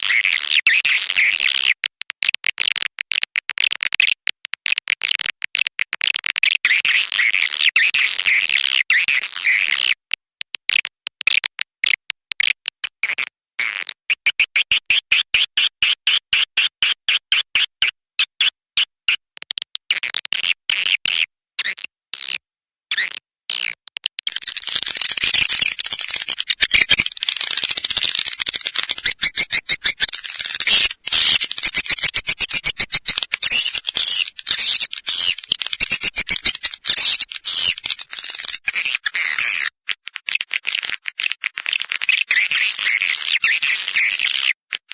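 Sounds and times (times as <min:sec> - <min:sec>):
sharp clicks: 0:22.9 - 0:38.7
twittering chorus of high chirps: 0:24.3 - 0:38.6.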